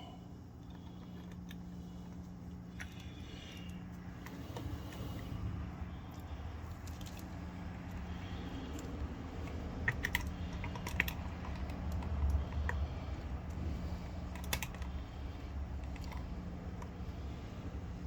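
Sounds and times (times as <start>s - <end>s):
low steady hum: 0.0s - 18.0s
screwdriver clicks and rattles: 8.7s - 13.6s, 14.2s - 15.0s.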